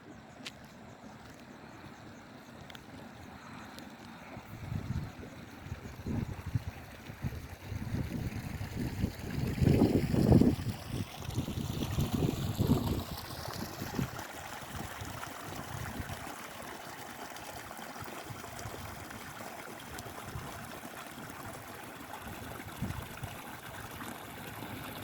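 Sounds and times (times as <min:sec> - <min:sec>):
water trickling and flowing: 0:00.0 - 0:25.0
wind rumble on microphone: 0:04.2 - 0:16.3, 0:20.0 - 0:21.6, 0:22.2 - 0:23.8.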